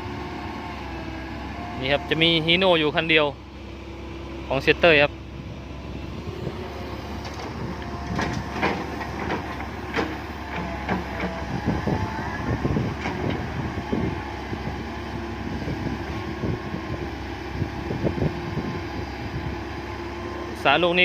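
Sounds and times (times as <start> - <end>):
excavator diesel engine running: 0.0 - 21.0
excavator bucket clanking: 7.0 - 12.0, 12.9 - 13.6.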